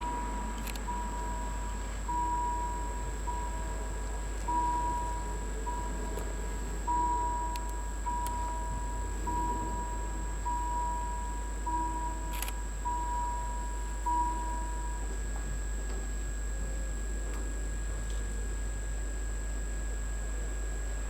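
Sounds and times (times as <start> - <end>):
level crossing warning bell: 0.0 - 15.4.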